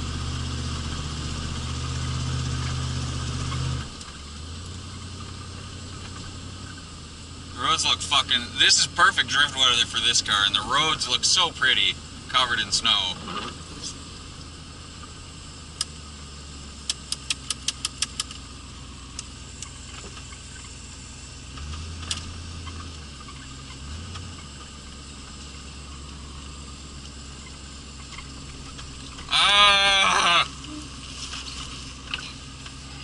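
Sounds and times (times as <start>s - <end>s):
car engine running: 0.0s - 33.0s
quick run of clicks: 16.8s - 18.4s.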